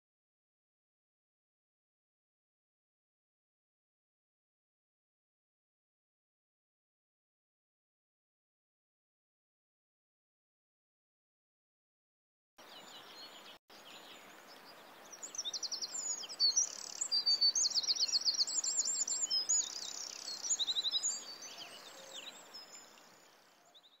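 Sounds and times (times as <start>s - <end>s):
small birds trilling and chirping: 12.6s - 24.0s
steady outdoor hiss: 12.6s - 24.0s.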